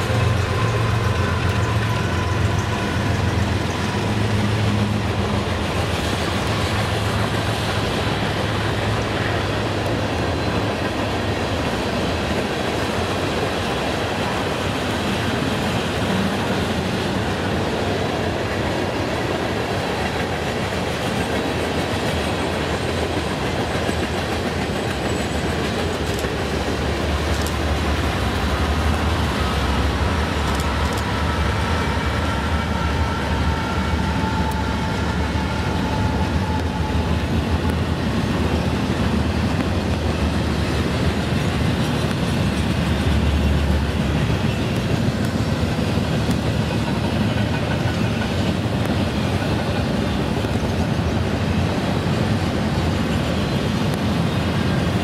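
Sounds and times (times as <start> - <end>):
freight train passing: 0.0 - 55.0
wheel-on-rail noise: 0.0 - 55.0.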